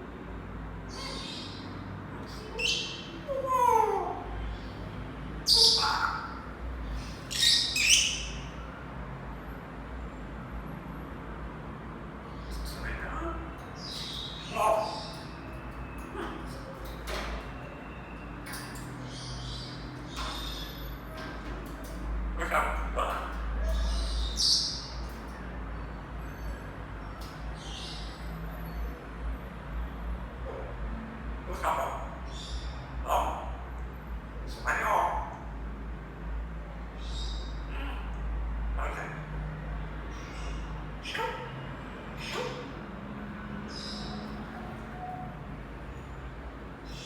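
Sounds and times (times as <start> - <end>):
parrot screeching: 2.2 - 4.8, 5.4 - 8.6, 12.7 - 15.4, 22.4 - 26.6, 31.5 - 33.6, 34.5 - 35.4, 38.8 - 39.2, 40.1 - 41.6, 42.2 - 42.8.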